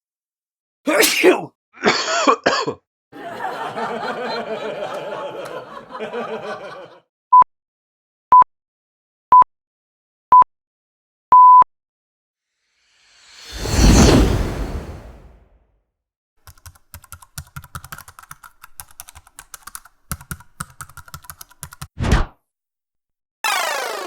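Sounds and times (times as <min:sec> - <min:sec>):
throaty cough-like sounds: 0:00.9 - 0:02.8.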